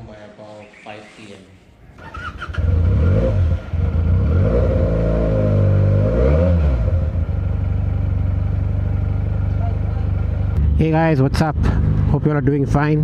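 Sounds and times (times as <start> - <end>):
motorcycle engine accelerating: 2.0 - 13.0.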